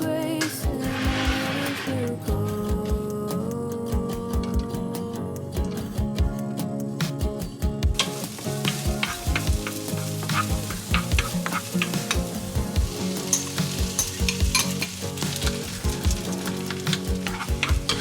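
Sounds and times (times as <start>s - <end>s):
food sizzling in a frying pan: 0.7s - 2.2s, 8.0s - 18.0s
utensil clicking against pan: 8.0s - 18.0s.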